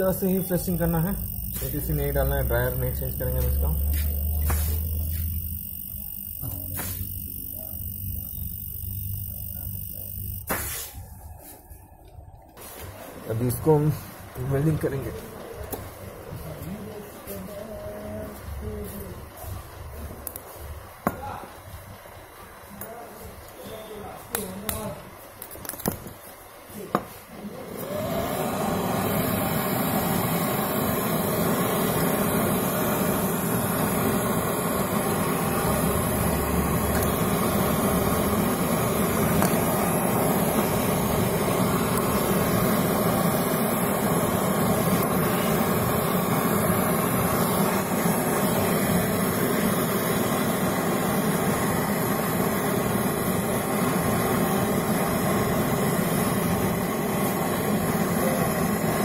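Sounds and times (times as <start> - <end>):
torch ignition click: 0.0 - 11.0, 20.2 - 21.3, 24.3 - 26.2, 27.8 - 59.0
torch flame hissing: 0.0 - 11.8, 12.6 - 59.0.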